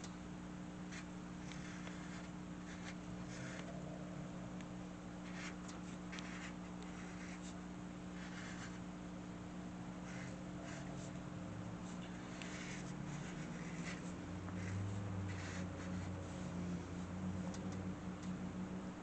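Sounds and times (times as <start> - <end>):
low electrical hum: 0.0 - 19.0
pencil scratching on paper: 0.9 - 3.8, 5.2 - 7.6, 8.2 - 8.9, 10.0 - 11.2, 11.8 - 17.2.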